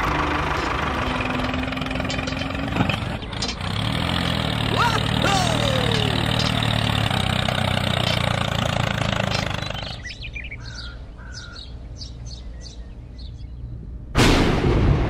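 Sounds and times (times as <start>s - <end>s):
small engine running: 0.0s - 10.1s
birds chirping: 0.0s - 14.1s.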